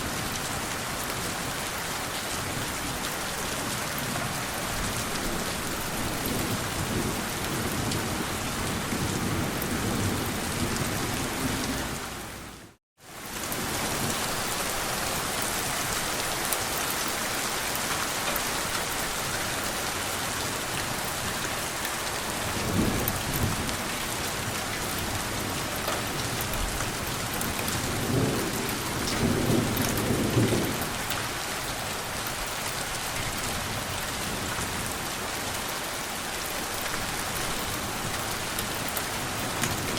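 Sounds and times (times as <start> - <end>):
heavy rain falling: 0.0 - 39.9
low thunder rumbles: 22.4 - 31.0.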